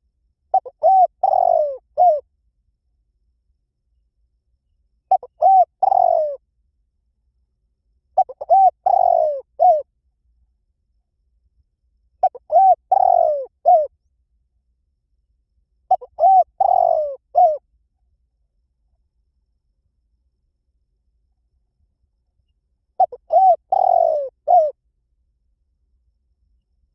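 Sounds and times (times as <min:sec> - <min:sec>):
dove cooing: 0:00.5 - 0:02.2, 0:05.1 - 0:06.4, 0:08.2 - 0:09.8, 0:12.2 - 0:13.9, 0:15.9 - 0:17.6, 0:23.0 - 0:24.8.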